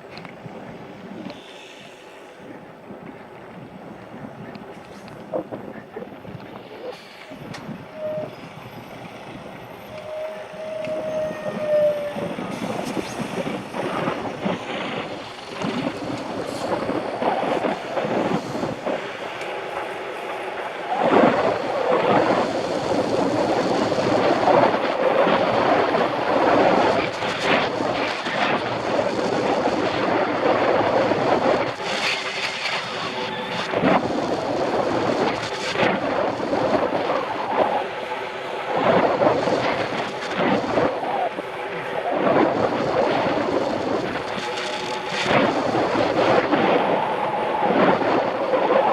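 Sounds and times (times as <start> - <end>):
wind on microphone: 0.0 - 48.9
brief squeal: 6.9 - 12.3.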